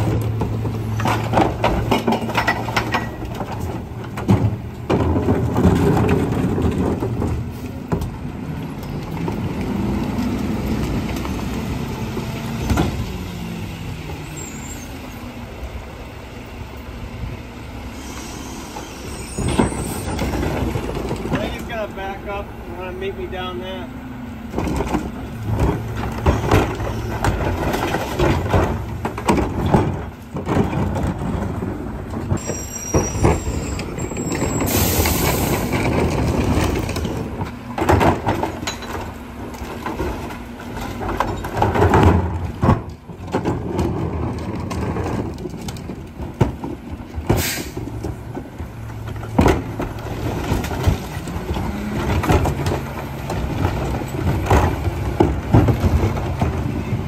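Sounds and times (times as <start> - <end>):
metal clanks and knocks: 0.0 - 8.1, 24.5 - 56.9
garbage truck engine running: 0.0 - 57.0.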